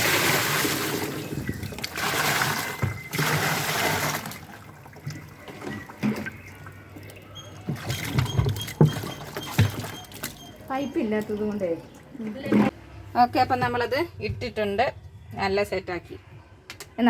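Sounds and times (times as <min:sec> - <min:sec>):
water splashing into washing machine: 0:00.0 - 0:12.8
water trickling: 0:00.0 - 0:12.8.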